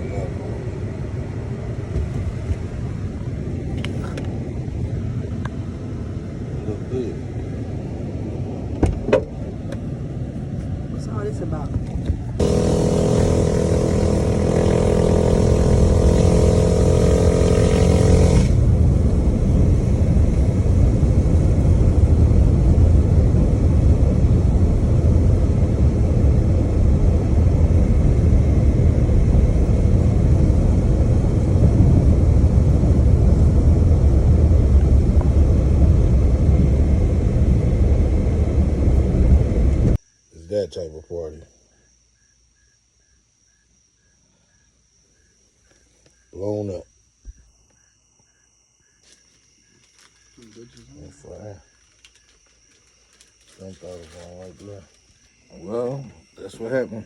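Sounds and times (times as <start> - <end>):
wind rumble on microphone: 0.0 - 40.0
small motorbike engine running: 12.4 - 39.9.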